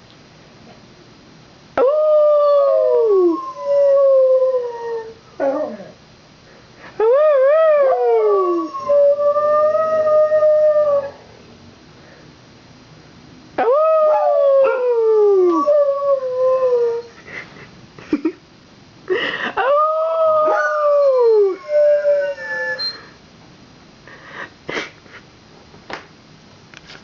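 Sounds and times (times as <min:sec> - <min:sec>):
dogs howling: 0:13.6 - 0:17.1, 0:19.6 - 0:23.0.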